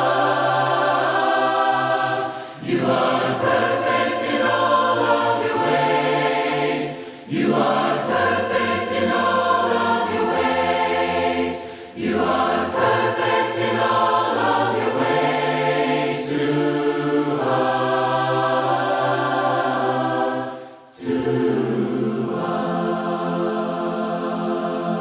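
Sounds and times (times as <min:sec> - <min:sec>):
choir singing a hymn: 0:00.0 - 0:25.0.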